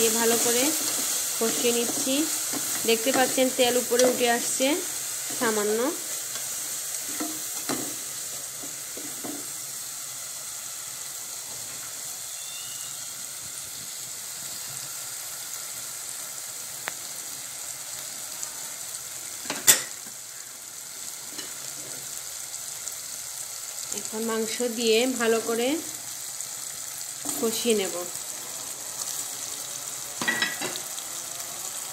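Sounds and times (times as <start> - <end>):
spice paste sizzling in oil: 0.0 - 31.9.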